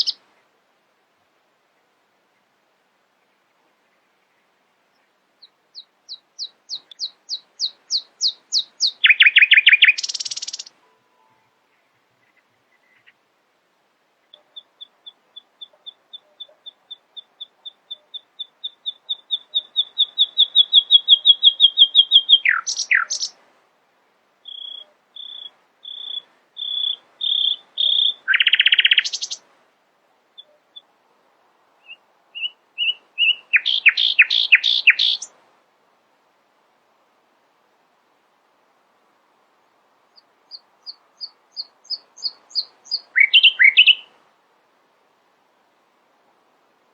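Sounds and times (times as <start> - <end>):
nightingale singing: 0.0 - 0.2, 4.9 - 13.2, 14.2 - 23.4, 24.4 - 29.5, 30.3 - 30.9, 31.8 - 35.4, 40.1 - 44.2.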